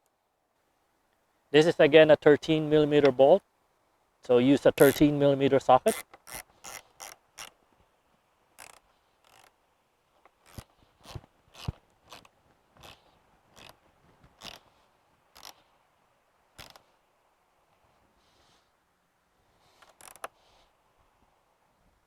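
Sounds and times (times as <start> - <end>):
ratchet wrench clicking: 4.8 - 5.0, 5.9 - 7.5, 8.6 - 9.5.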